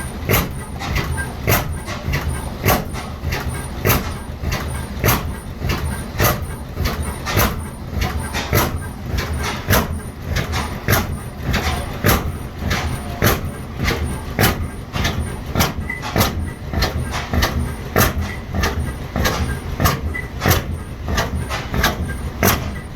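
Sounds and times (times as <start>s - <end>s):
hit-and-miss engine running: 0.0s - 22.9s.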